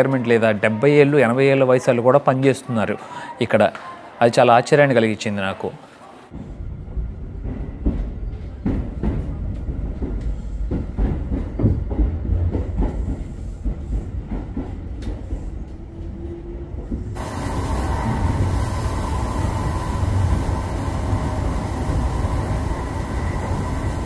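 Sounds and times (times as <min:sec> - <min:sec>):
train rumbling on rails: 0:06.3 - 0:24.0.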